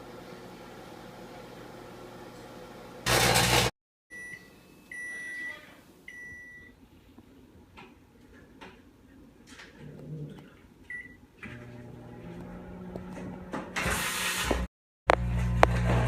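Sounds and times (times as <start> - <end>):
microwave oven noise burst: 3.1 - 3.7.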